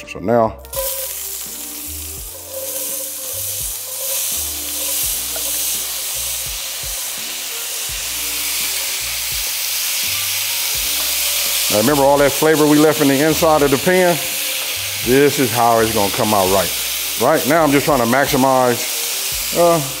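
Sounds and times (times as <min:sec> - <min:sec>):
potatoes sizzling in a skillet: 0:00.6 - 0:20.0
wooden spatula stirring: 0:02.2 - 0:06.0.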